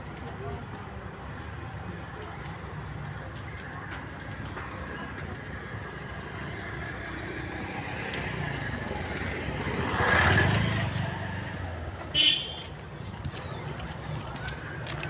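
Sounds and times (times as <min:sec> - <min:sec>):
outdoor background noise: 0:00.0 - 0:15.0
road vehicle passing by: 0:03.3 - 0:15.0.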